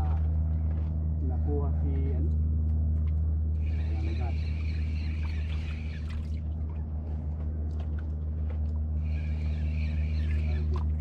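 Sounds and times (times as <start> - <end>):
boat engine humming: 0.0 - 11.0
spinning reel drag whirring: 3.6 - 6.4, 9.0 - 11.0.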